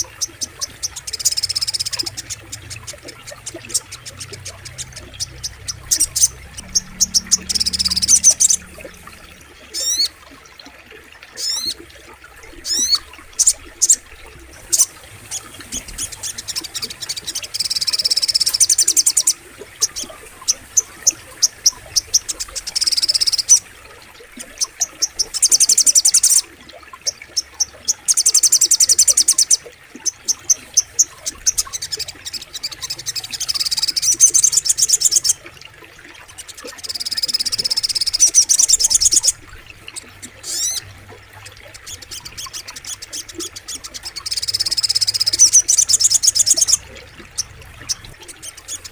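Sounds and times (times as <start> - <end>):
bird trilling: 0.2 - 10.2, 40.4 - 40.8.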